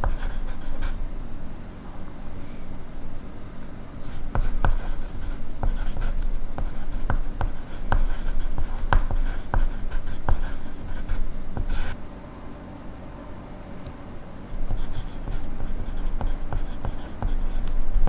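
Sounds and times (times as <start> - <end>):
pencil writing on paper: 0.0 - 1.0, 4.0 - 12.0, 14.5 - 18.0
pencil tip tapping paper: 4.1 - 5.0, 5.6 - 10.6.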